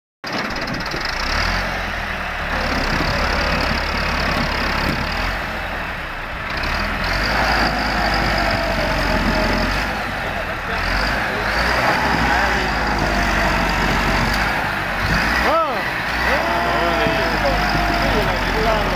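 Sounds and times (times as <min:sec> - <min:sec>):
tractor diesel engine: 0:00.2 - 0:18.9
high engine whine: 0:00.3 - 0:18.9.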